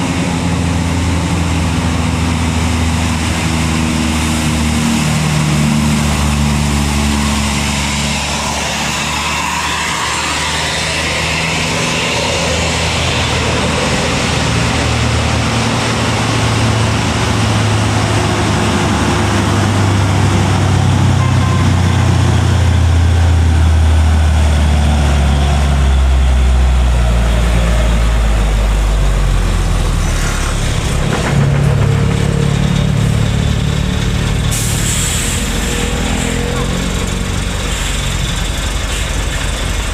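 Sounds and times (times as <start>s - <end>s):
truck diesel engine labouring: 0.0s - 39.9s.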